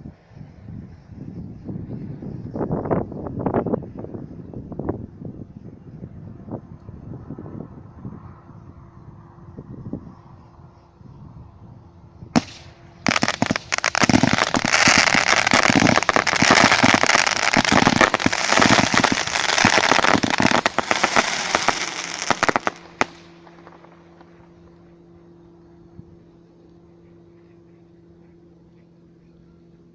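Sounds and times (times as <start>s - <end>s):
firework bang: 12.4s - 23.8s
fireworks crackling and popping: 12.4s - 24.3s.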